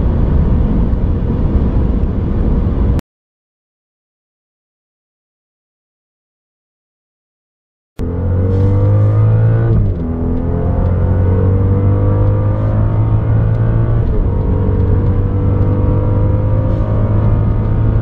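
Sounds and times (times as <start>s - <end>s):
car engine accelerating hard: 8.0s - 18.0s
gear upshifts: 8.0s - 18.0s.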